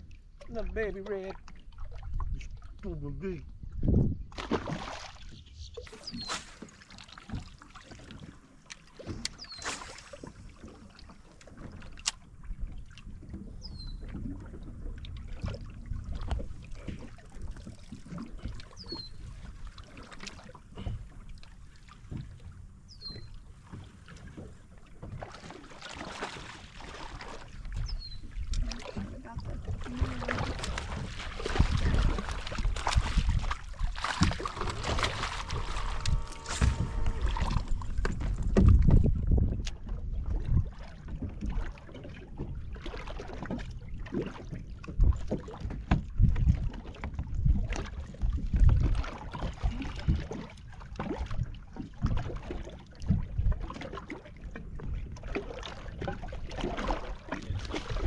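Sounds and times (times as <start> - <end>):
water around boat: 0.0 - 58.0
wind on microphone: 2.0 - 4.4, 27.5 - 41.6, 44.9 - 50.4.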